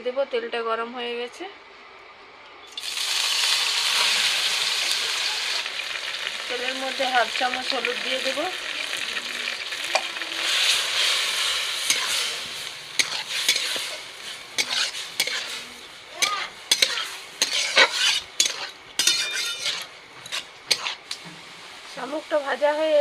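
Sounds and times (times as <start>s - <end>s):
snails sizzling in oil: 2.7s - 23.0s
metal spatula scraping pan: 10.0s - 21.5s.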